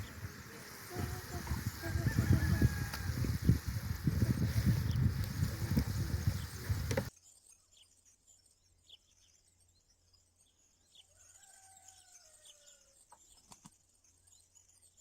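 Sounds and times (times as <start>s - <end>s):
distant rooster crowing: 1.8s - 3.5s, 11.1s - 12.9s
faint bird chirps: 6.2s - 15.0s.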